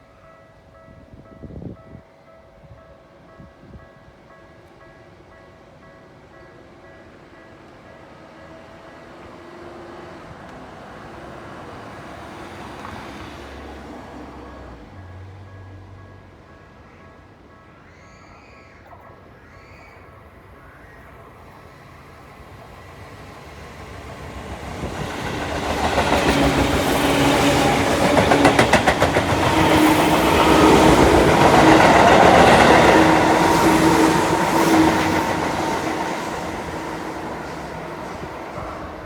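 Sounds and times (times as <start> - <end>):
steady train motor hum: 21.3 - 39.0
train wheels clattering over rail joints: 23.3 - 39.0.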